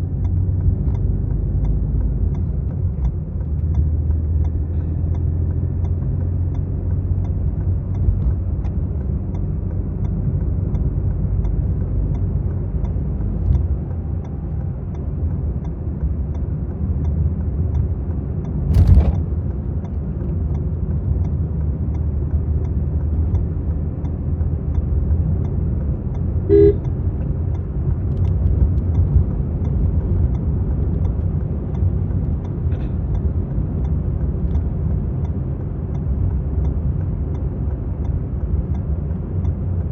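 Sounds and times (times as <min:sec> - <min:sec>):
car engine and road rumble: 0:00.0 - 0:39.9
sharp thump: 0:18.7 - 0:19.2
car horn toot: 0:26.5 - 0:26.9.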